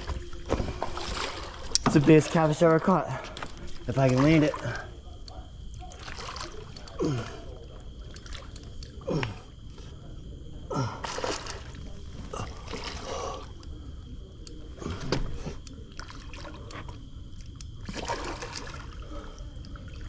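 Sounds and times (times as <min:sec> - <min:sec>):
fish thrashing in water: 0:00.0 - 0:09.7, 0:10.9 - 0:20.0.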